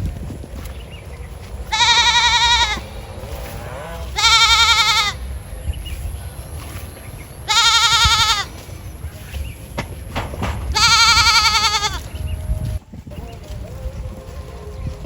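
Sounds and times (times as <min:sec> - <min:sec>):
animal bleating: 0:01.6 - 0:05.3, 0:07.4 - 0:08.6, 0:10.6 - 0:12.3.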